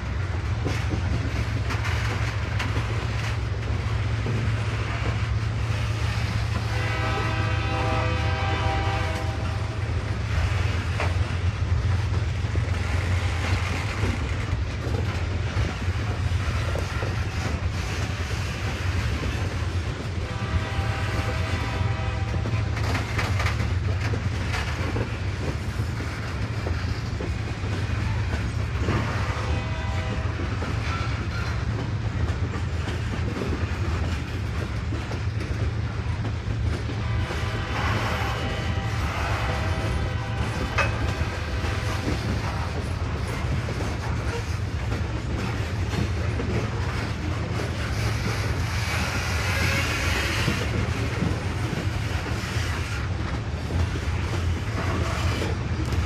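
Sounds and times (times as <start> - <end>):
train wheels rumbling on rail: 0.0 - 56.0
train horn: 5.0 - 10.4, 19.2 - 23.6, 28.8 - 31.7, 36.7 - 43.5, 47.8 - 53.1.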